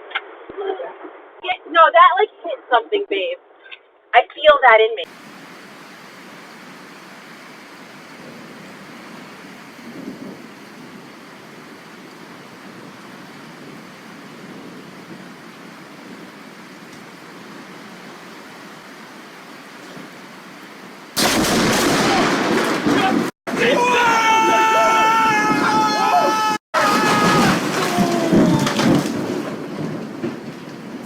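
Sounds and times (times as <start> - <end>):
heavy rain hissing: 5.1 - 30.0.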